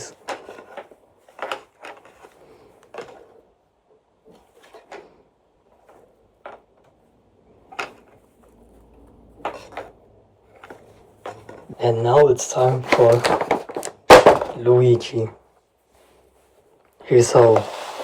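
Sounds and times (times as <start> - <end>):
knocks and rustles of plush toys: 0.0 - 3.5, 4.2 - 11.8, 12.5 - 14.9.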